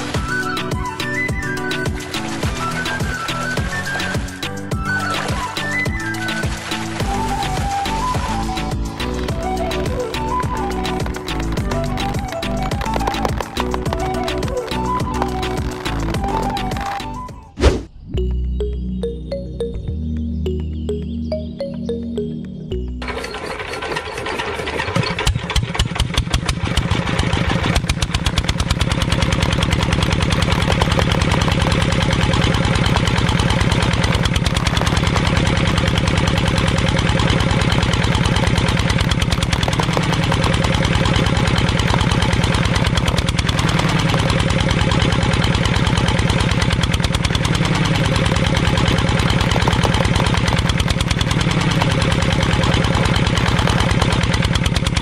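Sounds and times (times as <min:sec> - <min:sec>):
model diesel engine knocking: 0:23.0 - 0:55.0.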